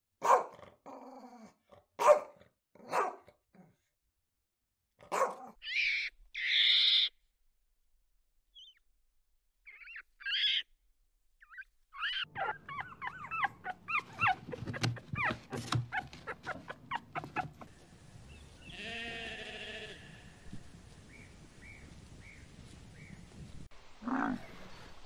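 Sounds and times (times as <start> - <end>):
puppy whining and yelping: 11.4 - 17.7
sheep bleating: 18.6 - 20.3.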